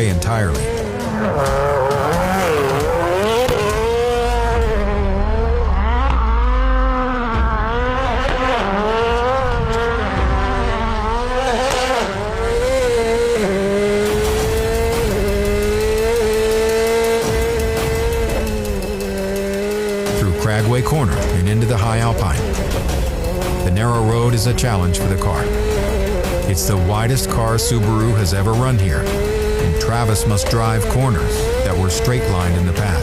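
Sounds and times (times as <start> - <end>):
race car engine revving: 0.0 - 33.0.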